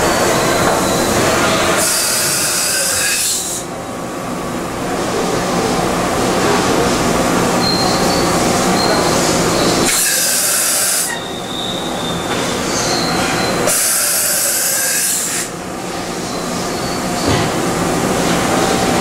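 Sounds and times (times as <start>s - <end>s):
loud air hiss: 1.3s - 3.7s, 9.9s - 11.2s, 13.6s - 15.6s.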